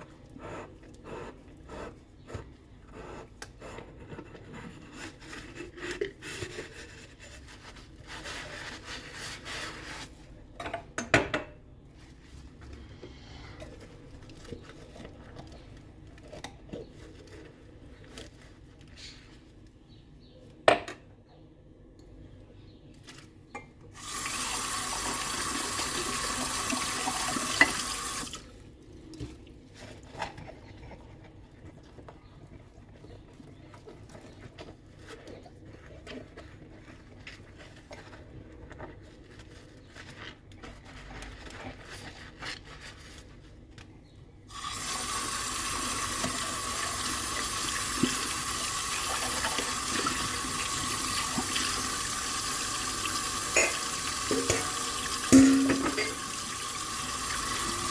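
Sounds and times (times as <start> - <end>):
dishes clicking and scrubbed: 53.5 - 56.4
tap running into a sink: 53.5 - 56.6.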